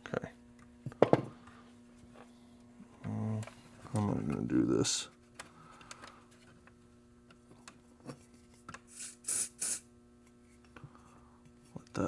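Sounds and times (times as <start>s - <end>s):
spray can hisses: 9.0s - 9.8s.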